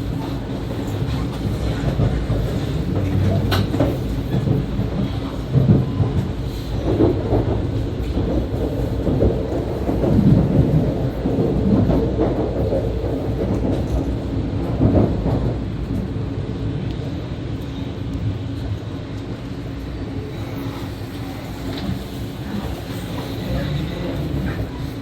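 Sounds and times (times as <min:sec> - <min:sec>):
heavy train thumps: 0:00.0 - 0:16.2
train wheels rumbling: 0:00.0 - 0:25.0.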